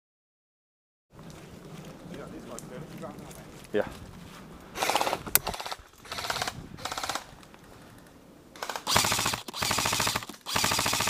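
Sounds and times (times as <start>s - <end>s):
airsoft rifles firing full auto: 4.8s - 7.3s, 8.6s - 11.0s.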